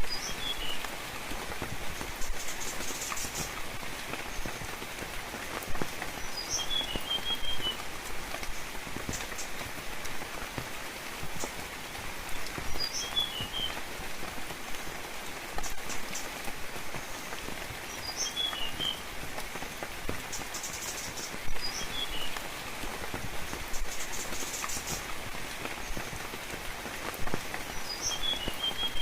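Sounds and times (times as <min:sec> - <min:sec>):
songbird chirping: 0:00.0 - 0:01.1, 0:01.8 - 0:04.9, 0:06.0 - 0:09.7, 0:11.1 - 0:13.9, 0:15.6 - 0:19.1, 0:20.2 - 0:22.6, 0:23.4 - 0:25.1, 0:27.6 - 0:29.0
rain pattering: 0:00.0 - 0:29.0.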